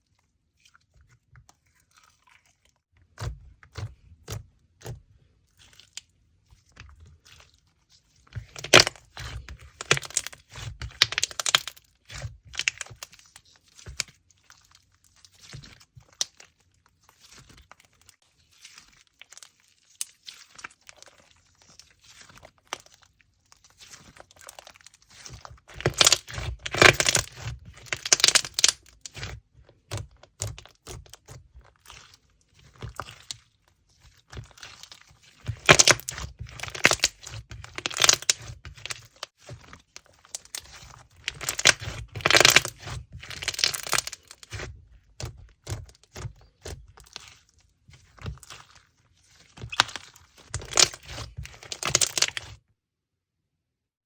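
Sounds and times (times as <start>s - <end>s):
slime crackling and popping: 8.4s - 14.3s, 18.5s - 52.6s.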